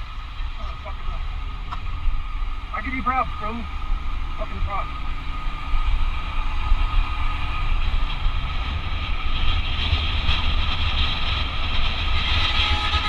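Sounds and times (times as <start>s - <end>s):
constant hiss: 0.0s - 7.2s
heavy low rumble: 0.0s - 13.0s.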